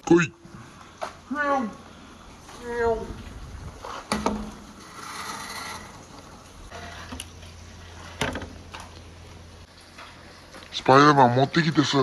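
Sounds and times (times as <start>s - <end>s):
water running and splashing: 5.5s - 12.0s.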